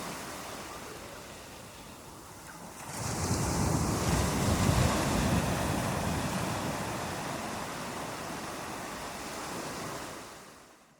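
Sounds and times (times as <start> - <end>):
ocean waves on beach: 0.0 - 10.9.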